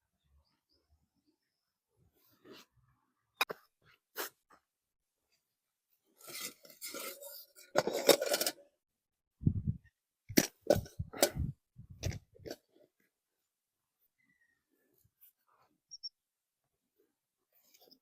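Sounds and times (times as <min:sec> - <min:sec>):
rustle and scrape: 0:06.2 - 0:08.6
metal pots clinking and knocking: 0:06.2 - 0:08.7.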